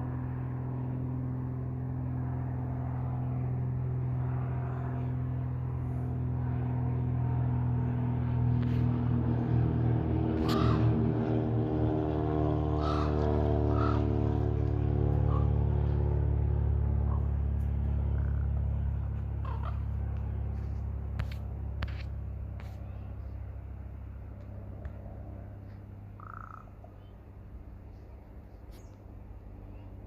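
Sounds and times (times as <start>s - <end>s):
low steady rumble: 0.0s - 30.0s
corvid calls: 10.4s - 11.0s, 12.8s - 14.0s, 19.4s - 19.9s, 26.2s - 27.0s.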